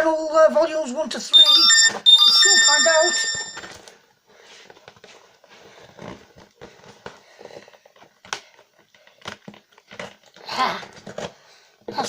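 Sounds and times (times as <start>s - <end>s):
parcel packaging taps and rustles: 7.9s - 10.4s.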